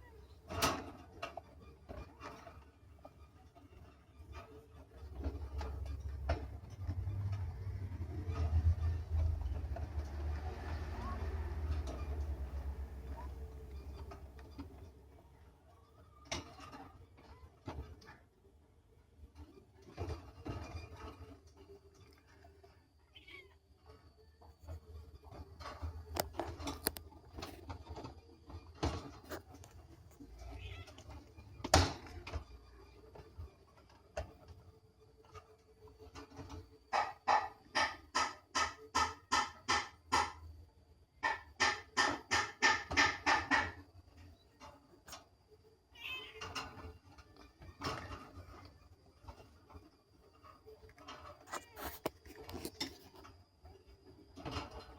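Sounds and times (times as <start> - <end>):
handling knocks and rustles: 46.4 - 54.9.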